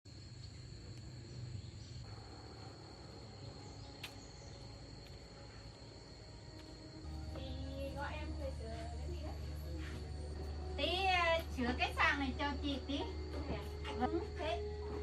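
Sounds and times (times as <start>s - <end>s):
insect trilling: 0.1s - 8.5s
low hum: 0.2s - 15.0s.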